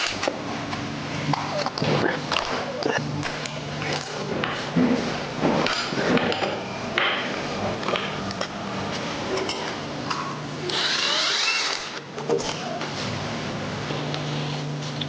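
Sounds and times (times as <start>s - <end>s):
air tool hissing whir: 10.6s - 12.0s.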